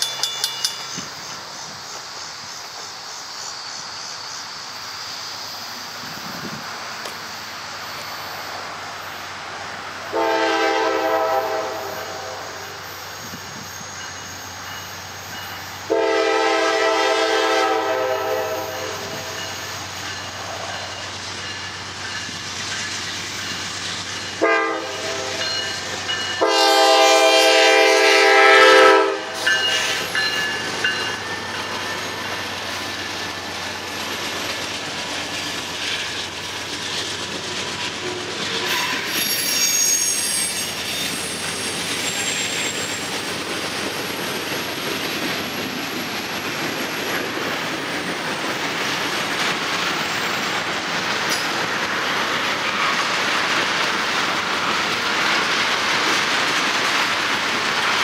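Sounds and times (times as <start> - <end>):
freight train rolling past: 0.0 - 58.0
locomotive horn blasts: 10.1 - 12.8, 15.9 - 19.4, 24.4 - 25.5, 26.4 - 29.7
wheel squeal: 38.0 - 43.4.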